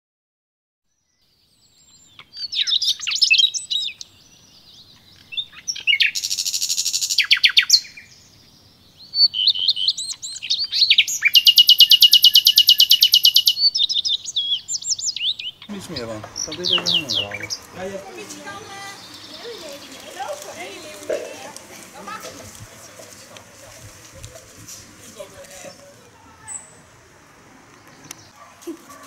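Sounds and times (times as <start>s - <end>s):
bird singing: 0.9s - 29.0s
buzzy bird trill: 1.5s - 27.0s
long fast bird trill: 1.6s - 20.9s.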